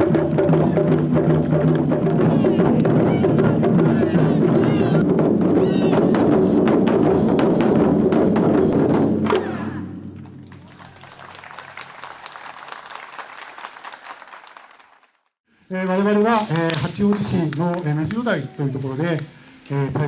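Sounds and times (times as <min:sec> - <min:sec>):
taiko drums playing loudly: 0:00.0 - 0:10.5
audience applause: 0:10.4 - 0:15.2.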